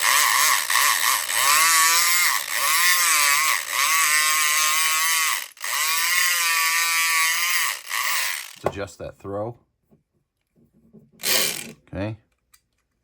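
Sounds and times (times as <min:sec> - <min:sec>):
electric lock pick buzzing: 0:00.0 - 0:08.7, 0:11.2 - 0:11.8.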